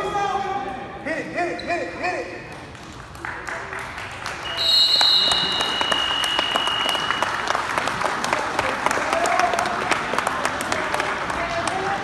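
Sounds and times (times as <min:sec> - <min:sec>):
crowd applauding: 0:03.0 - 0:12.0.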